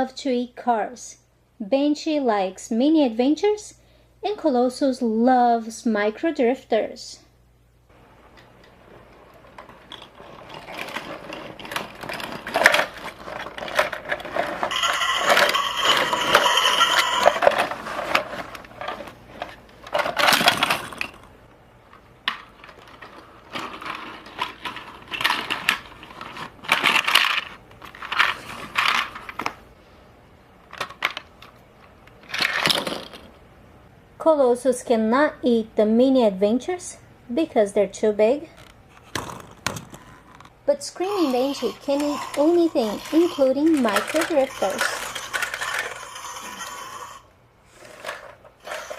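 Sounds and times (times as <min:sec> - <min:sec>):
plastic toys clattering: 0:08.3 - 0:29.6, 0:30.6 - 0:33.4, 0:38.6 - 0:48.9.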